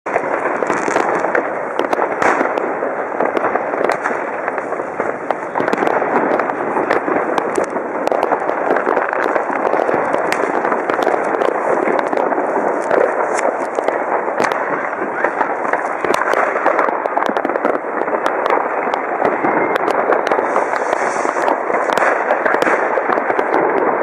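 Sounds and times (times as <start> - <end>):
fireworks crackling and banging: 0.0 - 24.0.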